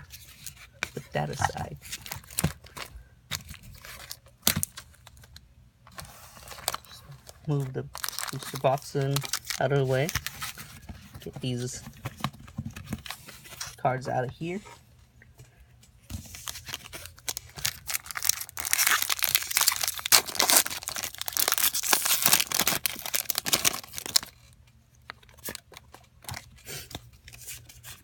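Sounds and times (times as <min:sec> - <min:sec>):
foil wrapper tearing and crinkling: 0:07.5 - 0:10.6, 0:16.4 - 0:24.5.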